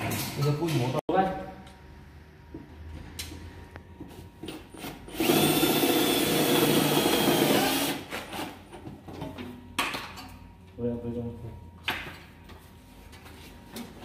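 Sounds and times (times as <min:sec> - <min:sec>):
power drill on sheet metal: 0:04.8 - 0:08.5.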